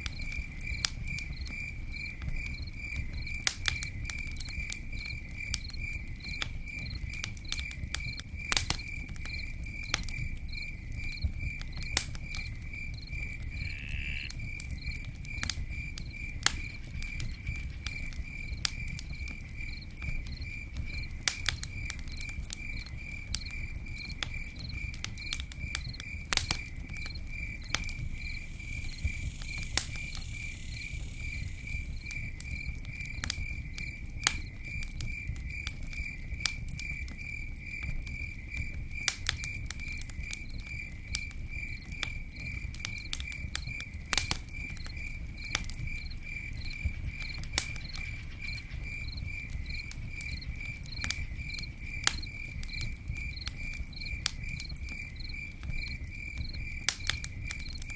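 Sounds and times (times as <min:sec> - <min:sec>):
campfire crackling and popping: 0:00.0 - 0:57.9
cricket chirping: 0:00.0 - 0:57.9.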